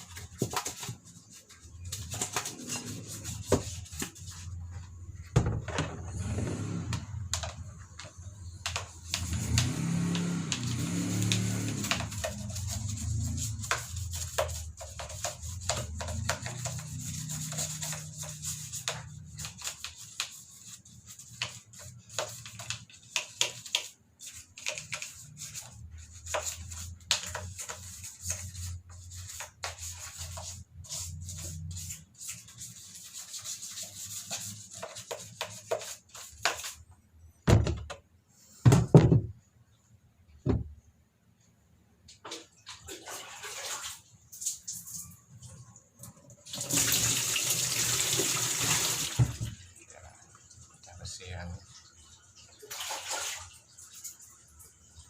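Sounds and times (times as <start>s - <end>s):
scrubbing and scraping: 0.0s - 5.3s, 8.8s - 36.9s
loud knocks: 38.6s - 39.4s.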